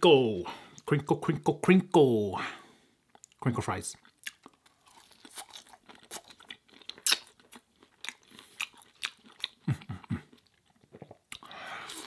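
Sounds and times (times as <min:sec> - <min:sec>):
chewing crunchy fries: 0:03.1 - 0:12.0
wet mouth clicks: 0:07.0 - 0:07.4.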